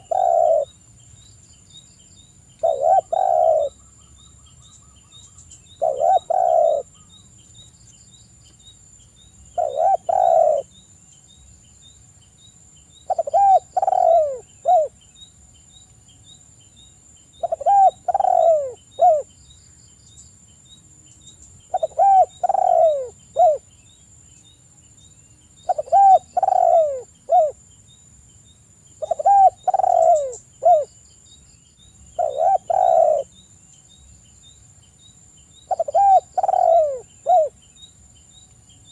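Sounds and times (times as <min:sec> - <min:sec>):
dove cooing: 0:00.0 - 0:00.8, 0:02.6 - 0:03.8, 0:05.8 - 0:07.1, 0:09.6 - 0:10.7, 0:13.1 - 0:15.0, 0:17.4 - 0:19.3, 0:21.7 - 0:23.6, 0:25.6 - 0:27.6, 0:29.0 - 0:30.9, 0:32.2 - 0:33.4, 0:35.7 - 0:37.6.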